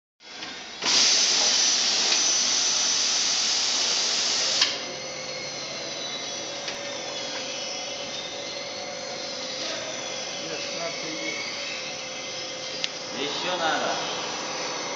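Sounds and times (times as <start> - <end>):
machine hissing: 0.8 - 4.8.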